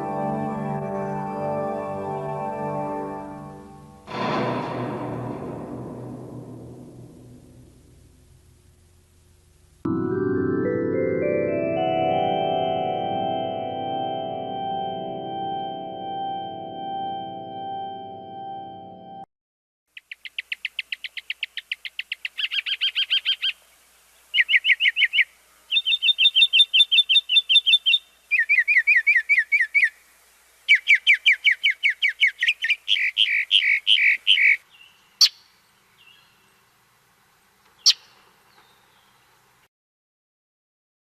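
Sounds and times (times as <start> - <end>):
songbird singing rapid trills: 19.9 - 23.6, 24.2 - 30.0, 30.7 - 36.7, 37.8 - 39.2.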